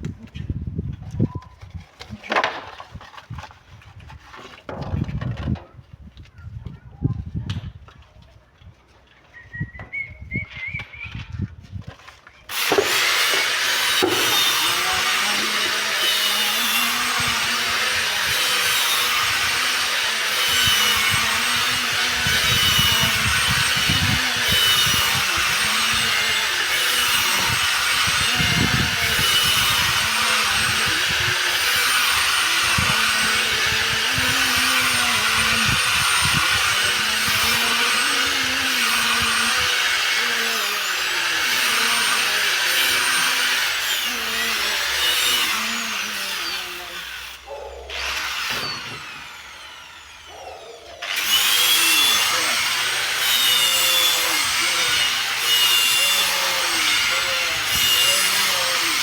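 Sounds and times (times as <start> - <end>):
power tool grinding on stone: 12.5 - 59.0.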